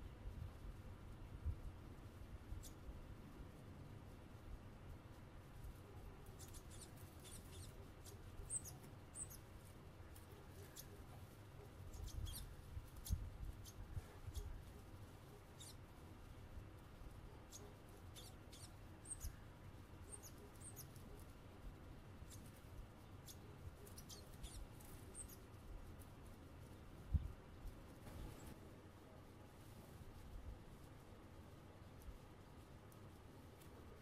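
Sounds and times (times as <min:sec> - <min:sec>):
faint low rumble: 0:00.0 - 0:34.0
birds giving high-pitched calls: 0:06.3 - 0:09.5, 0:11.7 - 0:14.6, 0:15.3 - 0:15.8, 0:17.4 - 0:21.3, 0:22.2 - 0:25.6.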